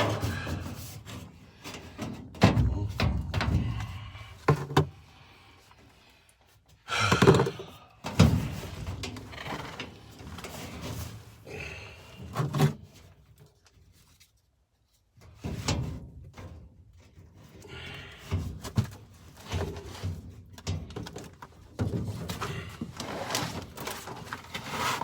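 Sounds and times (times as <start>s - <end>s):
knocks and clunks: 2.3s - 5.0s, 6.9s - 8.6s
rustling of hands working: 18.5s - 25.0s.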